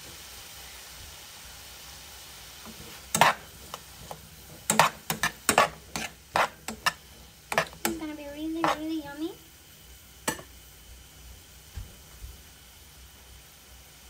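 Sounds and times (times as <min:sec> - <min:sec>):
stir-fry sizzling in a pan: 0:00.0 - 0:14.0
utensil knocking against pan: 0:02.7 - 0:08.9, 0:10.3 - 0:10.5.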